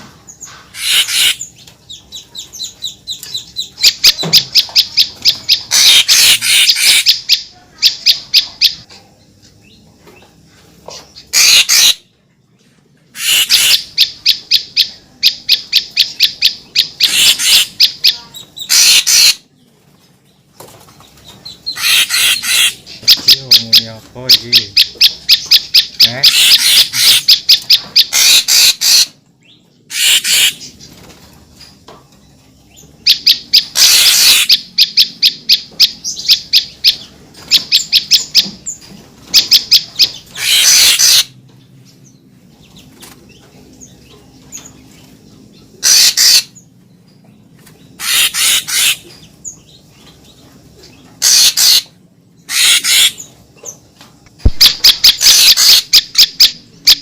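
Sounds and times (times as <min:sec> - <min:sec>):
rapid high repeated bird notes: 0:00.7 - 0:01.5, 0:02.6 - 0:08.8, 0:11.3 - 0:12.0, 0:13.2 - 0:19.4, 0:21.7 - 0:29.1, 0:33.1 - 0:37.0, 0:39.4 - 0:41.3, 0:45.8 - 0:46.6, 0:48.0 - 0:49.1, 0:52.5 - 0:53.3, 0:54.5 - 0:57.0.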